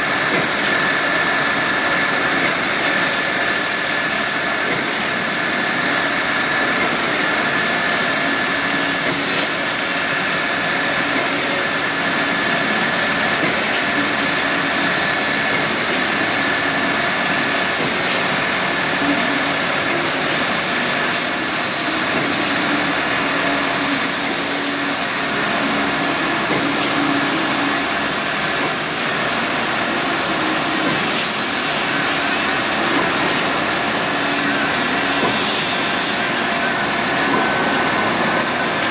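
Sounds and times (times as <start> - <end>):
construction machinery engines droning: 0.0 - 38.9.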